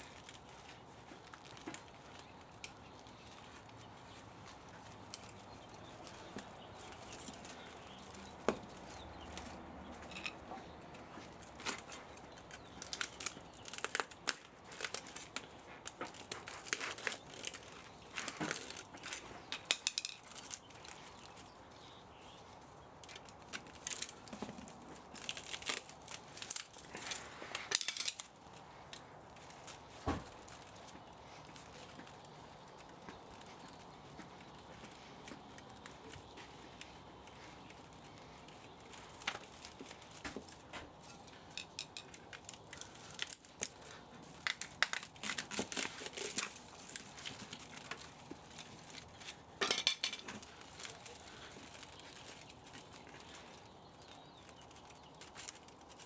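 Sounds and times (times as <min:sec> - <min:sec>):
metal parts clicking and scraping: 0:25.2 - 0:28.3, 0:44.4 - 0:52.4.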